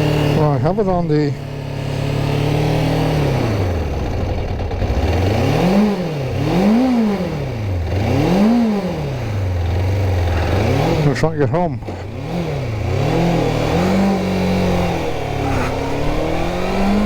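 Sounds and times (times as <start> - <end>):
motorcycle engine spluttering: 9.2 - 11.2.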